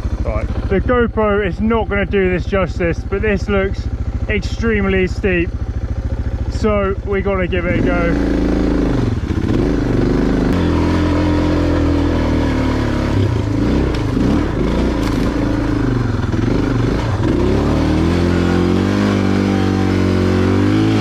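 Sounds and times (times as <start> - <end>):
motorcycle engine revving: 0.0 - 21.0
clatters and knocks from bike: 15.0 - 15.6.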